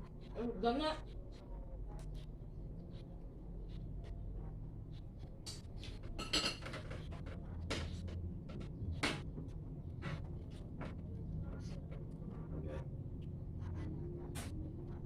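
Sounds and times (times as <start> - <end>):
steady low hum: 0.0 - 15.0
dishes and utensils clinking: 6.2 - 7.0.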